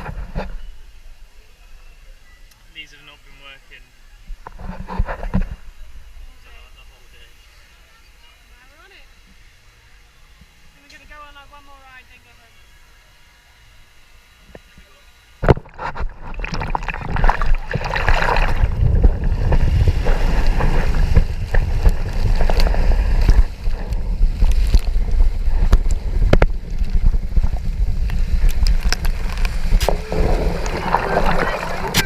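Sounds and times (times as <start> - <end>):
rushing water: 15.4 - 32.0
wind buffeting microphone: 15.5 - 32.0.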